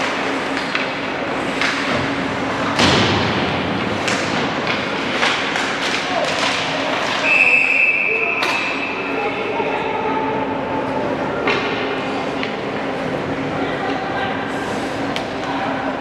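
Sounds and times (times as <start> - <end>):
high whistle blast: 7.2 - 8.4.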